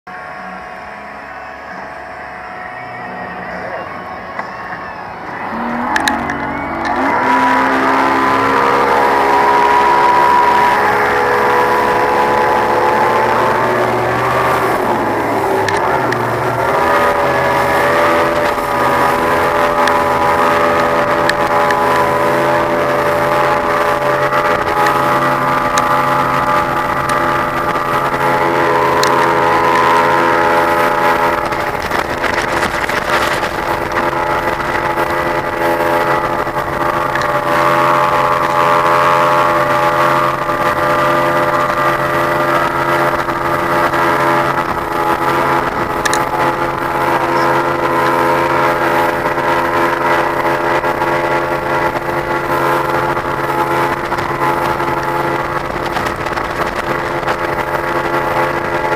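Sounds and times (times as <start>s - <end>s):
boat engine running: 0.1s - 58.9s.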